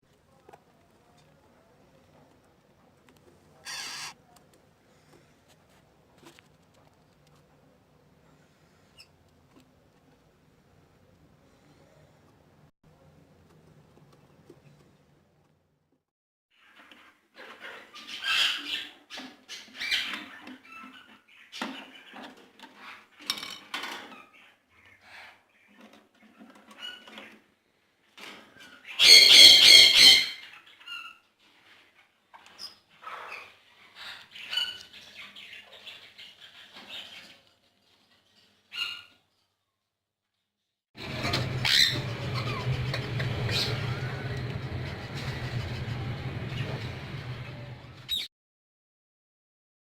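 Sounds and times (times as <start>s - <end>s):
parakeets squeaking and chattering: 3.6s - 4.2s, 28.6s - 37.4s, 41.0s - 48.3s.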